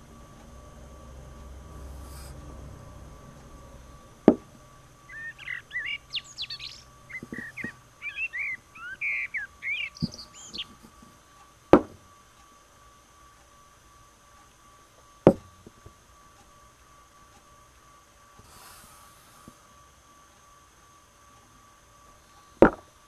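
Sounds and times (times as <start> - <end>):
small birds chirping: 3.4 - 11.3
sharp knocks: 11.8 - 12.0, 22.6 - 22.9.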